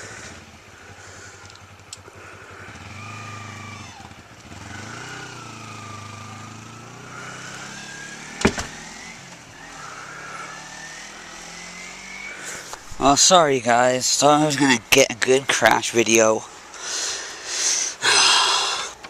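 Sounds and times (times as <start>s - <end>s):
motorcycle engine riding off: 0.0s - 17.4s.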